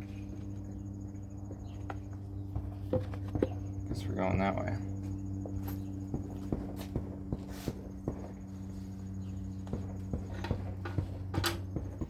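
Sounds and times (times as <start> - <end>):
steady low hum: 0.0 - 12.0
hammers pounding: 2.5 - 12.0.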